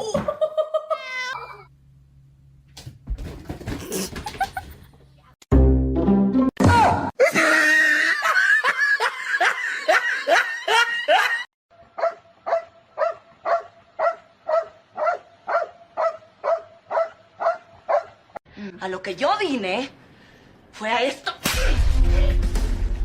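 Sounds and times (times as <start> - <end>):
dog barking: 12.0 - 18.2.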